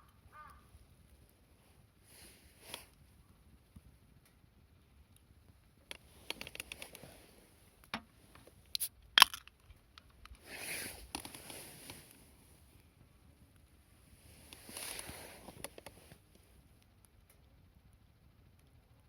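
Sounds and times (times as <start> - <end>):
light clicks and scrapes: 2.1 - 3.0, 5.9 - 8.9, 9.6 - 12.9, 14.3 - 16.5
brief rustle: 10.2 - 12.3, 14.4 - 16.2.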